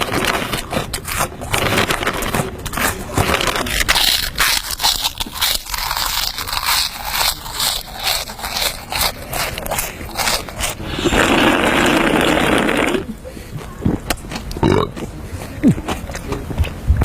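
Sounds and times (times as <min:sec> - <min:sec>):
snack wrapper crinkling and crunching: 0:00.0 - 0:12.9.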